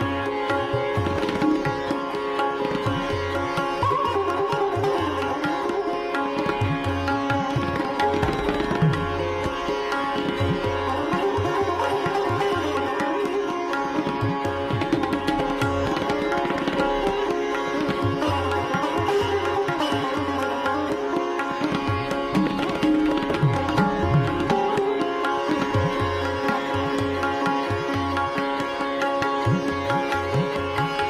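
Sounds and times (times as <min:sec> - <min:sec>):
plucked strings: 0:00.0 - 0:31.0.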